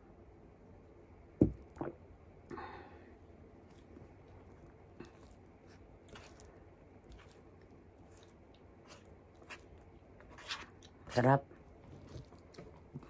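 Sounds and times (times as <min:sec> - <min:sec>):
close-up chewing: 0:03.6 - 0:13.0.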